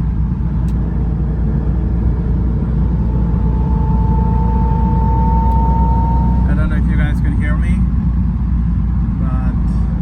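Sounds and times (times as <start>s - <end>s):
car engine rumble: 0.0s - 10.0s
road noise on wet highway: 0.0s - 10.0s.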